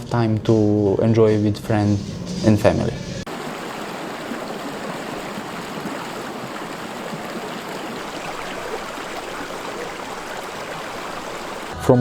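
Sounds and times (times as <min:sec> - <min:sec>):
flowing water rushing: 0:03.3 - 0:11.8.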